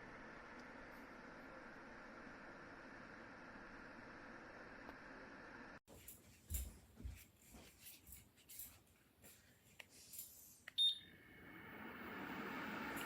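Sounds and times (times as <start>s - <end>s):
fan heater blowing: 10.8s - 13.0s.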